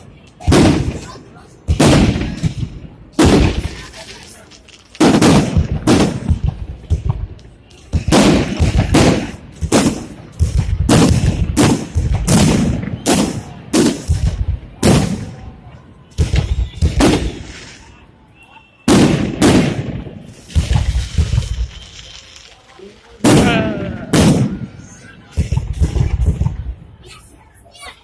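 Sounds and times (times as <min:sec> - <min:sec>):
fireworks bursting with echo: 0:00.0 - 0:27.5.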